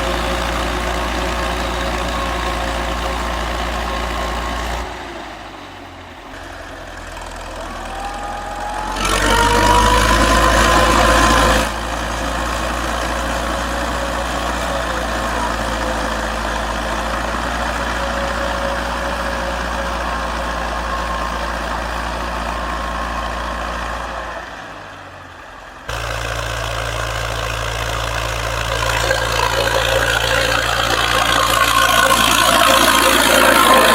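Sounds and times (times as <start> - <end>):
farm machine engine running: 0.0 - 33.9
rising whine: 7.5 - 12.1, 28.4 - 33.9.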